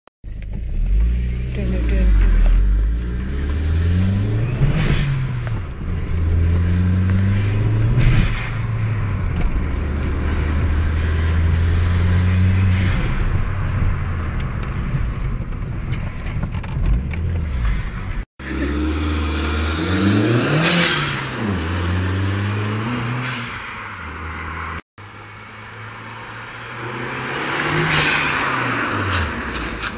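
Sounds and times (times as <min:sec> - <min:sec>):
car engine revving: 0:00.6 - 0:15.3, 0:16.2 - 0:24.8.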